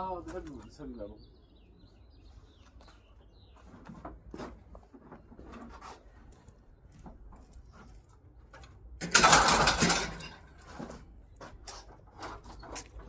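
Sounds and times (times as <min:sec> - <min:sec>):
faint knocks and rustles: 0:02.6 - 0:08.9
scrap metal clattering: 0:09.0 - 0:13.0.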